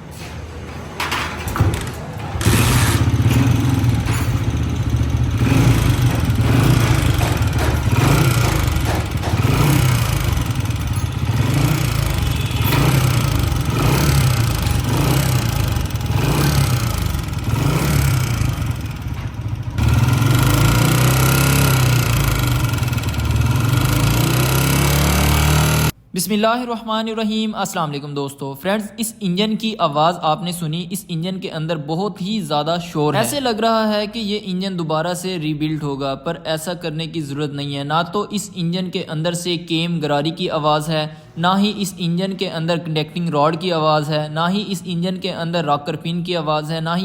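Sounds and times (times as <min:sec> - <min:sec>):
motorcycle engine revving: 0:01.6 - 0:26.0.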